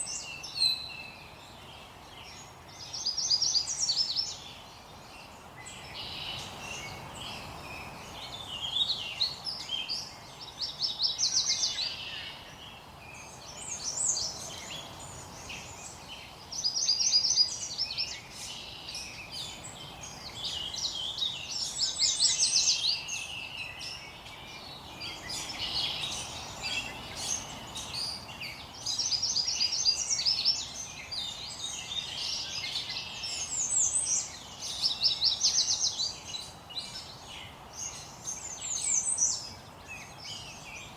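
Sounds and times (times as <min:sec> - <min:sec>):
faint steady hiss: 0:00.0 - 0:40.9
songbirds singing: 0:00.0 - 0:40.9.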